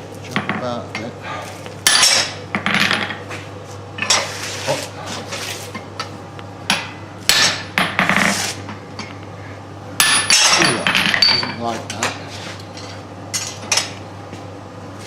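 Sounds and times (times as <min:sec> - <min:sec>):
steady low hum: 0:00.0 - 0:15.0
hammer striking hot steel: 0:06.7 - 0:08.1, 0:10.0 - 0:11.4.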